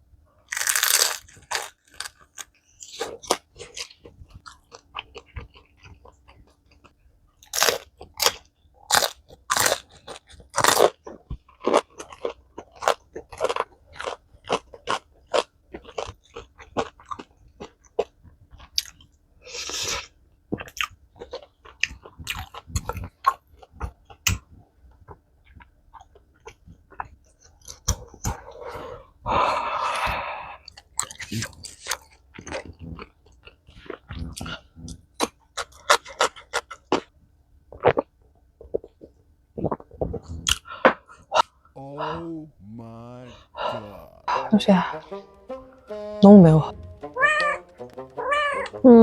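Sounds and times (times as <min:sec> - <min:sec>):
person chewing and smacking: 0:00.5 - 0:19.1, 0:20.6 - 0:28.4, 0:30.6 - 0:37.1.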